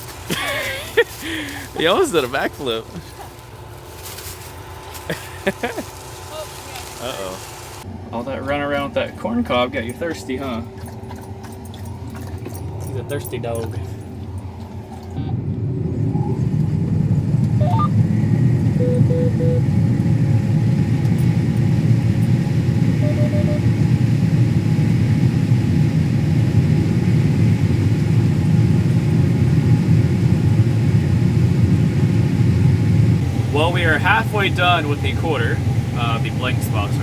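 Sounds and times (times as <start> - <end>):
combine harvester rumbling: 0.0 - 37.0
faint short beeps: 23.0 - 23.7.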